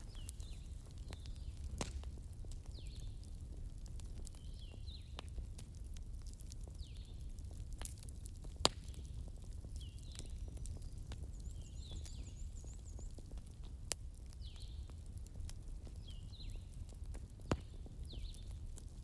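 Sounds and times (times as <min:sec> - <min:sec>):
bonfire crackling and popping: 0:00.0 - 0:19.0
bird chirping: 0:09.8 - 0:13.2.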